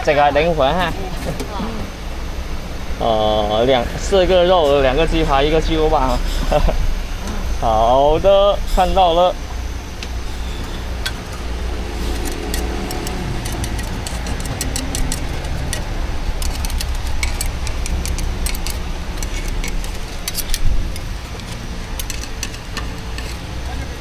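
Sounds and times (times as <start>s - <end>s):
low rumble: 0.0s - 23.1s.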